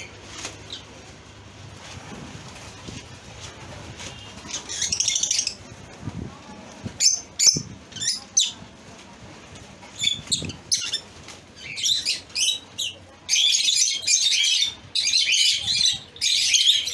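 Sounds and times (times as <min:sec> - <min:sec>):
lovebirds chirping: 0:04.1 - 0:05.7, 0:10.0 - 0:16.9.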